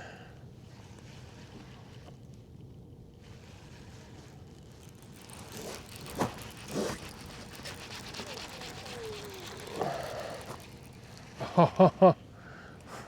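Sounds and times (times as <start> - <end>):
fishing reel ticking: 4.1 - 12.1.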